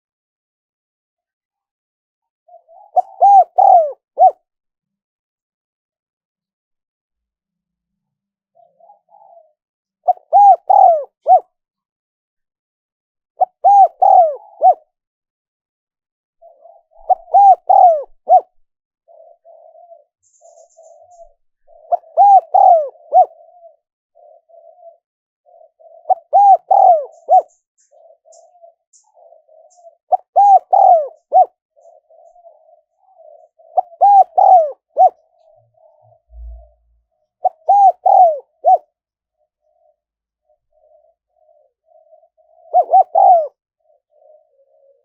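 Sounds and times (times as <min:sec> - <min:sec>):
dove cooing: 0:02.5 - 0:04.4, 0:08.5 - 0:11.5, 0:13.4 - 0:14.9, 0:16.4 - 0:45.0.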